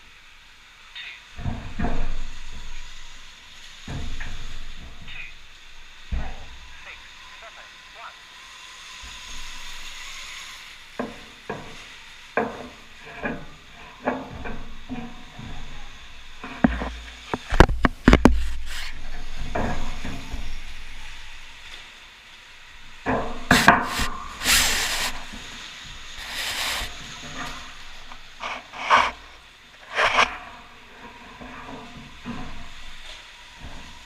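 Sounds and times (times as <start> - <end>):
hissing scrape: 1.0 - 22.0, 22.6 - 34.0
bike knocks and rattles: 1.4 - 2.9, 3.8 - 7.0, 11.0 - 21.4, 23.0 - 34.0.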